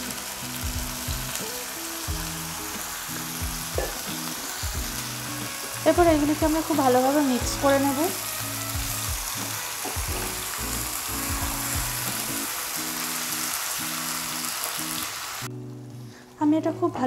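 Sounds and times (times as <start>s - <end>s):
chicken sizzling in frying pan: 0.0s - 15.5s
background music held notes: 0.0s - 17.0s.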